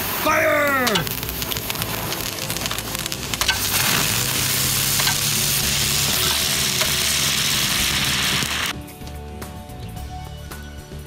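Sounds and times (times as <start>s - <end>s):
firework hissing and crackling: 0.0s - 8.8s.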